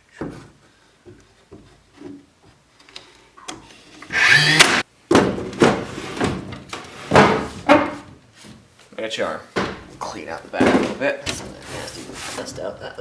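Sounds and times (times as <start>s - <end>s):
nail gun firing: 4.1s - 4.8s.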